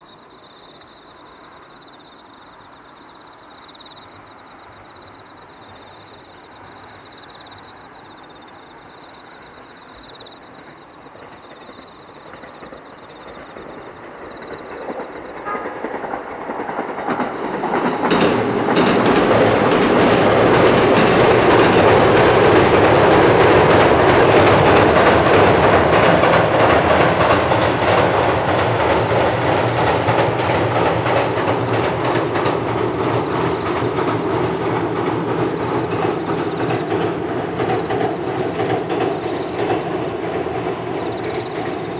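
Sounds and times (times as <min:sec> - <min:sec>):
electric train running past: 0:00.0 - 0:41.9
wheels clacking over rail joints: 0:10.6 - 0:41.9.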